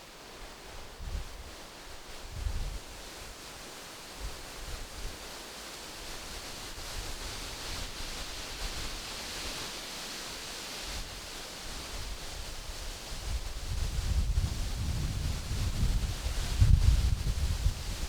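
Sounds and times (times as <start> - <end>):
wind rustling tree leaves: 0.0 - 18.0
wind buffeting microphone: 13.2 - 18.0.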